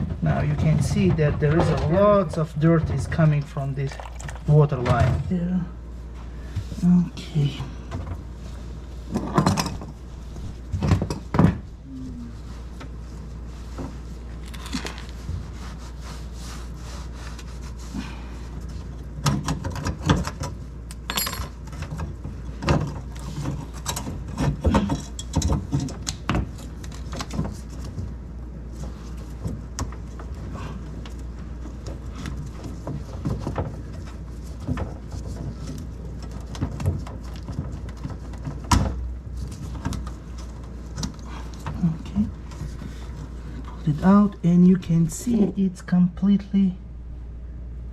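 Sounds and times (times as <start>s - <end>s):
steady low hum: 0.0s - 47.9s
hand tools clicking and clinking: 21.0s - 21.5s.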